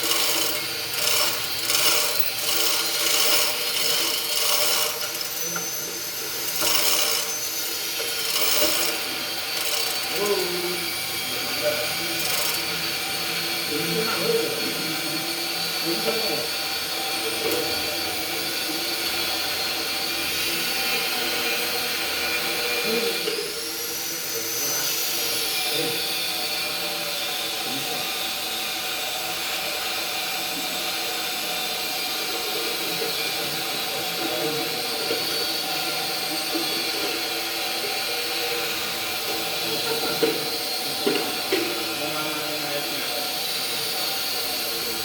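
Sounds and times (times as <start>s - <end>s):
machine motor whining: 0.0s - 20.0s.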